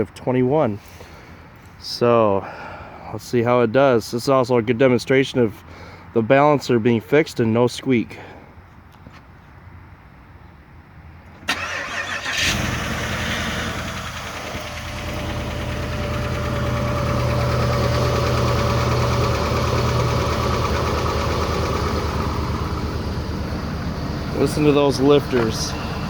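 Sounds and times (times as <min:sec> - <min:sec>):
starter motor cranking: 0:11.5 - 0:23.0
car engine fast idle: 0:11.5 - 0:26.0
noisy engine lifters: 0:11.5 - 0:26.0.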